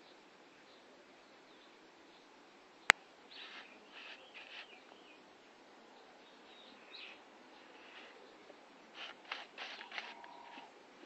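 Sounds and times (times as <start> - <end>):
faint bird chirps: 0.0 - 10.8
background hiss: 0.0 - 11.0.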